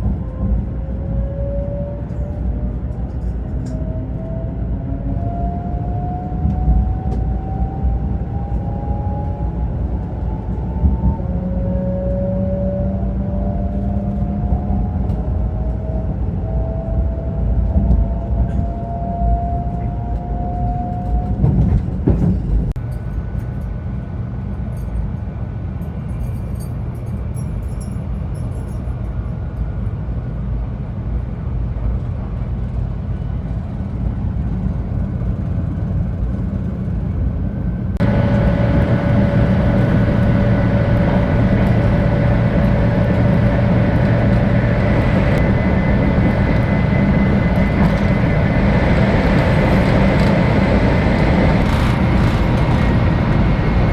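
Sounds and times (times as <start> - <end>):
train rumble: 0.0 - 53.9
train motor whine: 33.2 - 53.9.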